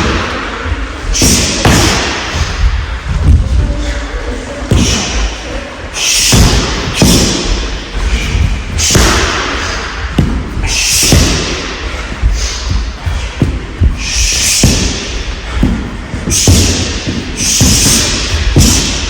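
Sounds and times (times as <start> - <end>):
punches and kicks thudding on mat: 1.2 - 2.5, 8.8 - 9.5, 10.1 - 12.0, 12.7 - 19.0.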